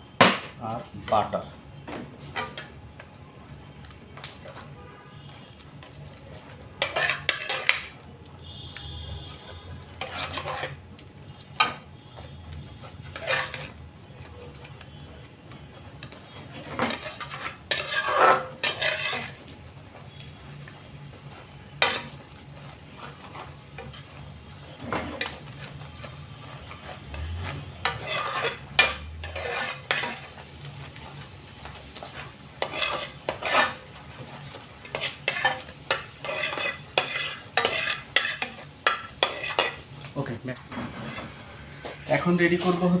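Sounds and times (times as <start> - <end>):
metal spoon scraping a dish: 5.8 - 8.0, 9.1 - 10.8, 11.6 - 13.8, 16.0 - 19.4, 21.8 - 31.2, 32.0 - 39.9.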